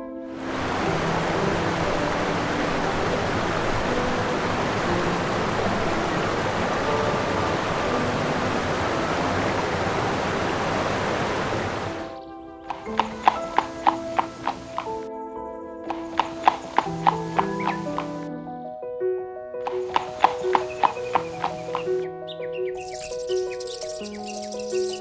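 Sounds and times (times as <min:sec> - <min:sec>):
steady rushing noise: 0:00.4 - 0:12.2.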